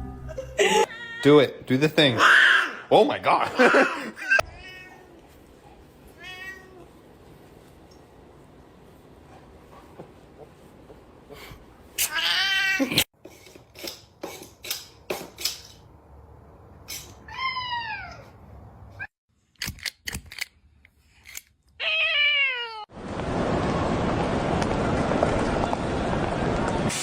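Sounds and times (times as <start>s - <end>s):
cat meowing: 4.4s - 5.2s, 6.2s - 6.9s, 21.8s - 22.9s.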